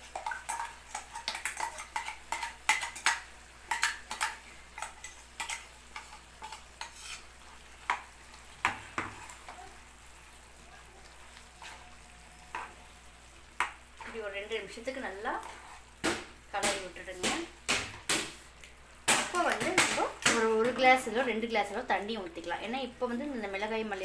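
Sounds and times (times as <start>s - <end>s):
spoon scraping and knocking a pan: 0.0s - 9.6s
faint frying sizzle: 0.0s - 24.0s.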